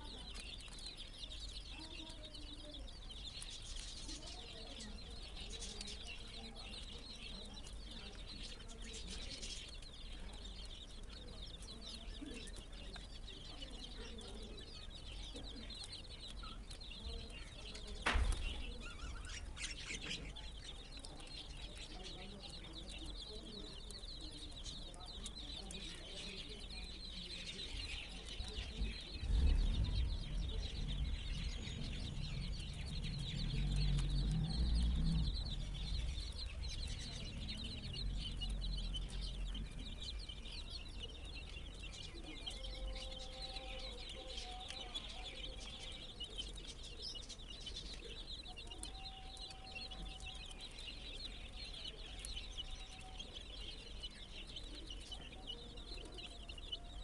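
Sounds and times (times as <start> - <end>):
chicks peeping: 0.0 - 57.0
low rumble: 28.8 - 40.5.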